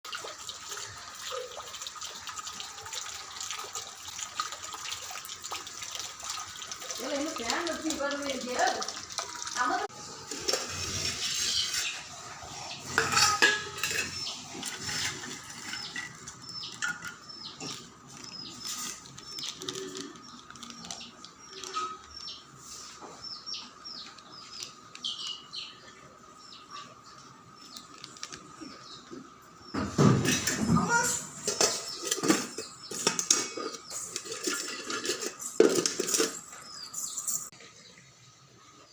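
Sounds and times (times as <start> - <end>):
utensils and dishes clinking: 7.0 - 22.2, 29.8 - 37.6.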